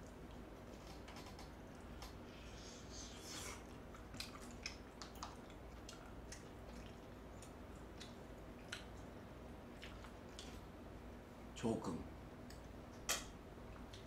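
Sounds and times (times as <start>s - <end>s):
person chewing with wet mouth smacks: 3.0s - 10.6s.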